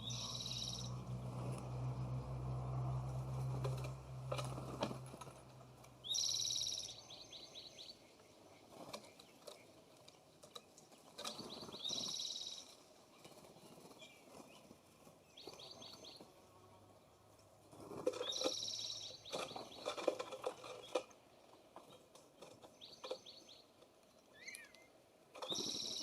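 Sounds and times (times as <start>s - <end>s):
songbird trilling: 0.0s - 1.0s, 6.0s - 8.0s, 11.4s - 12.7s, 18.1s - 19.9s, 24.3s - 26.0s.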